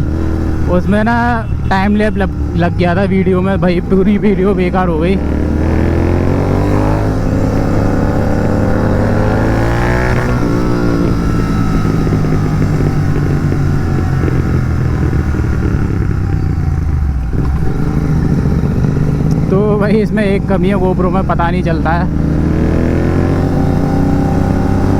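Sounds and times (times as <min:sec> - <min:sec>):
motorcycle engine accelerating: 0:00.0 - 0:24.9.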